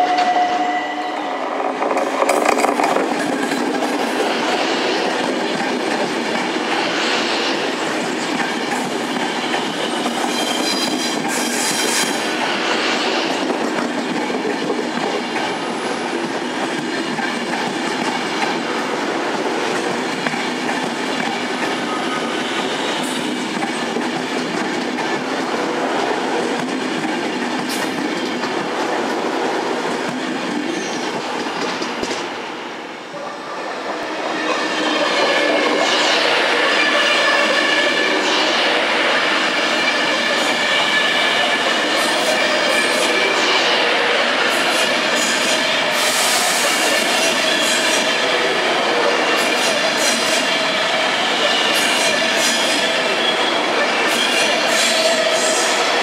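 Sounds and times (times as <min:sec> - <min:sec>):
train wheels rumbling on rail joints: 0:00.0 - 0:56.0
high wheel squeals: 0:09.1 - 0:12.2.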